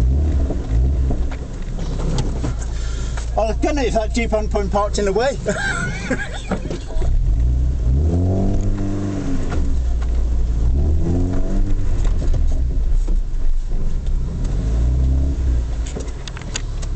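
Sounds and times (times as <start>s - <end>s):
engine revving: 0.0s - 3.2s, 7.1s - 12.8s, 14.0s - 16.9s.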